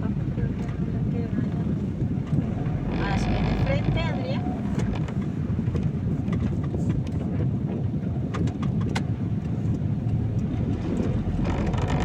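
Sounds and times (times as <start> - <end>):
car driving on wet road: 0.0 - 7.2.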